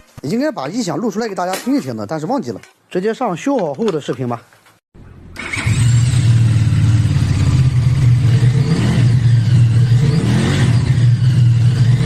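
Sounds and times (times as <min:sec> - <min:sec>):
motorcycle engine running: 0:05.0 - 0:12.0.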